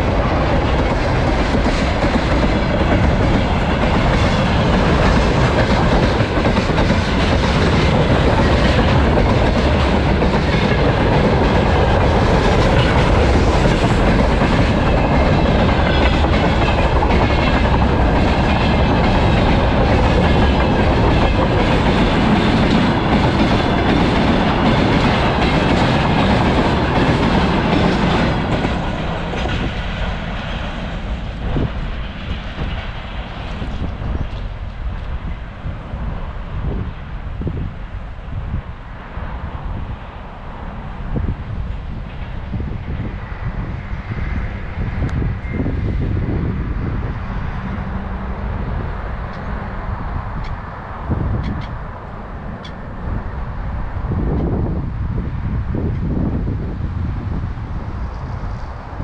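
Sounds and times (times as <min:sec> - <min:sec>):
train wheels clacking over rails: 0:00.0 - 0:35.2.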